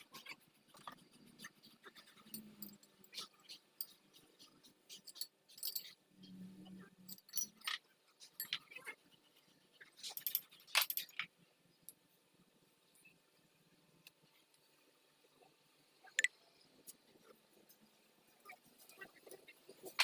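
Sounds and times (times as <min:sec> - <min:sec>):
metallic clinks of tools: 0:04.9 - 0:06.0, 0:07.1 - 0:07.8.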